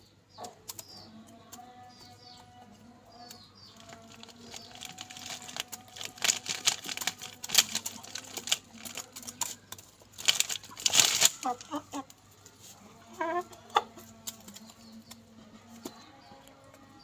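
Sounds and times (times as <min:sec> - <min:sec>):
rooster pecking at crisp food: 0:00.4 - 0:12.7.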